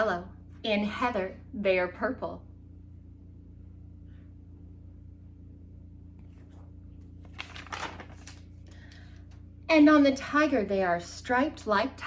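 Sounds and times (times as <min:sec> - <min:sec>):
steady low hum: 0:00.0 - 0:12.0
book page turning: 0:06.2 - 0:09.0.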